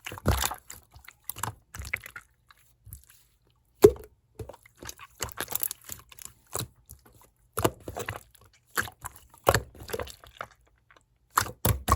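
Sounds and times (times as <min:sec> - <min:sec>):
slime squishing with sticky pops: 0:00.0 - 0:03.2, 0:03.8 - 0:11.9.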